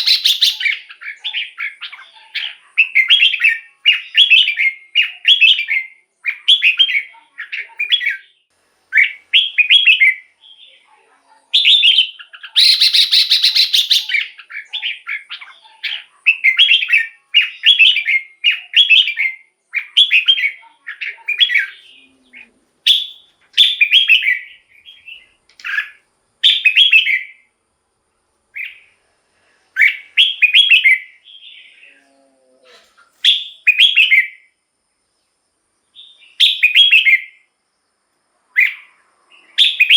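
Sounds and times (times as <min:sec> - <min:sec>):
harsh buzzy bird call: 0:00.0 - 0:01.8, 0:11.6 - 0:27.4
bird singing whistled phrases: 0:00.0 - 0:10.8, 0:11.6 - 0:22.0, 0:22.9 - 0:27.4, 0:29.8 - 0:32.0, 0:33.2 - 0:34.5, 0:36.0 - 0:37.4, 0:39.6 - 0:39.9.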